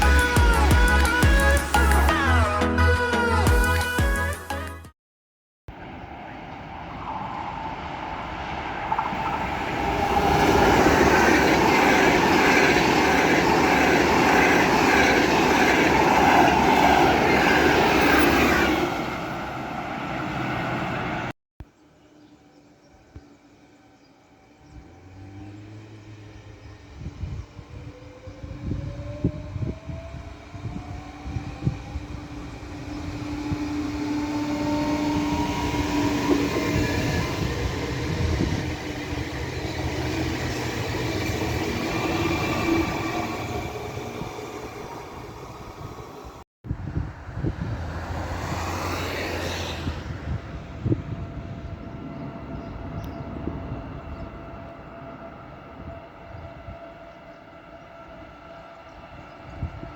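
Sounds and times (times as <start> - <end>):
freight train rolling through: 0.0 - 4.0, 5.8 - 21.3, 23.7 - 59.9
electric train motor whine: 24.0 - 46.2.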